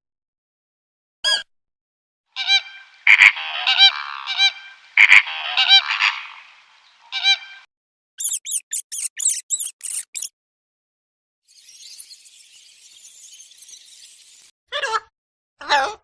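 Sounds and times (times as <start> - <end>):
birds honking: 2.4 - 7.6.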